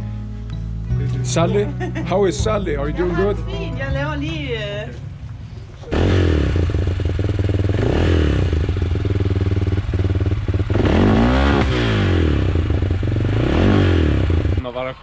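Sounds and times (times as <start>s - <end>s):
motorcycle engine revving: 3.8s - 14.9s.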